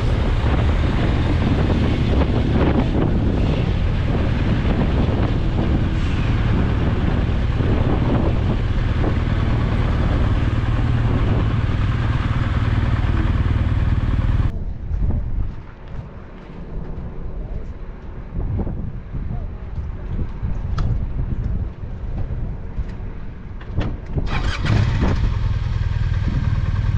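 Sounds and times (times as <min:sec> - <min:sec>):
motorcycle engine drone: 0:00.0 - 0:15.5, 0:20.9 - 0:26.9
wind rush on microphone: 0:00.0 - 0:26.9.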